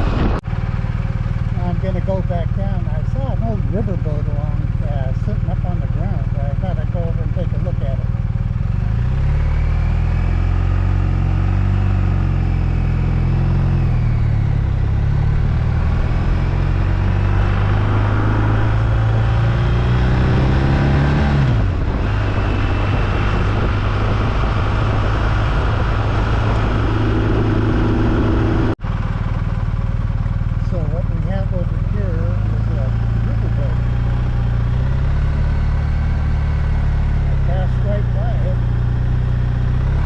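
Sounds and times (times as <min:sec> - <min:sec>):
wind noise: 0:00.0 - 0:00.5, 0:12.6 - 0:28.8
motorcycle engine running: 0:00.0 - 0:40.0
road noise: 0:00.0 - 0:40.0.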